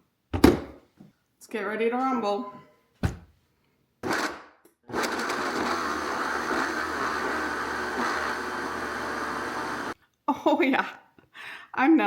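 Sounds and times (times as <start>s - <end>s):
blender motor blending: 4.0s - 10.0s.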